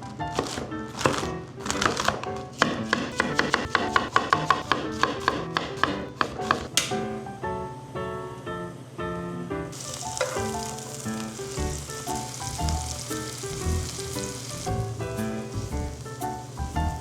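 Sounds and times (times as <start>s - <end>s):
food sizzling in an oiled pan: 9.7s - 17.0s.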